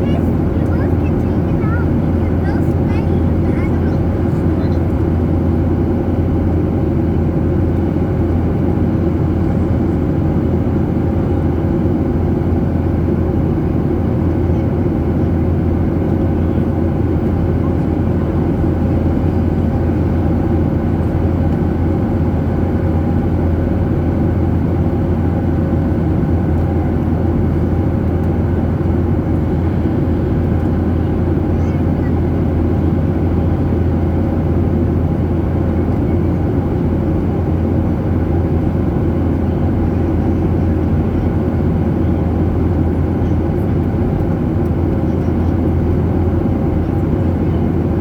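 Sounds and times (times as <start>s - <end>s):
jet engine drone in cabin: 0.0s - 48.0s.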